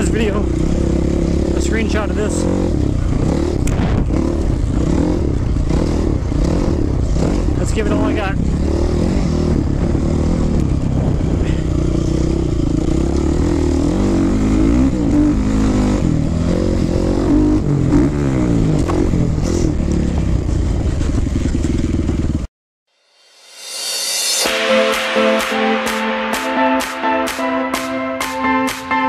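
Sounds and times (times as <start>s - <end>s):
dirt bike engine revving: 0.0s - 22.5s.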